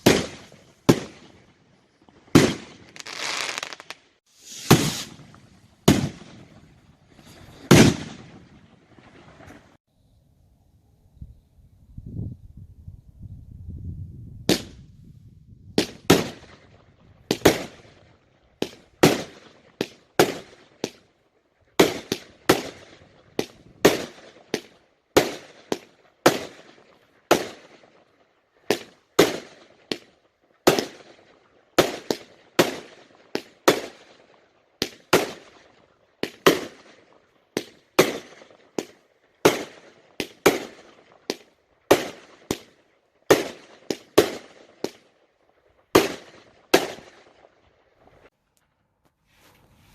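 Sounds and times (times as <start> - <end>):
fireworks bangs: 0.0 - 9.8, 15.8 - 21.0, 28.7 - 45.1, 45.8 - 47.6.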